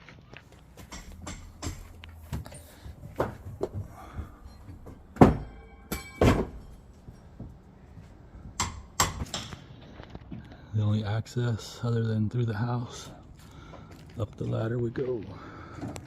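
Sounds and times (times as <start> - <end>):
knocks and clatter on wooden deck: 0.8 - 5.6
loud thunks: 0.8 - 6.7.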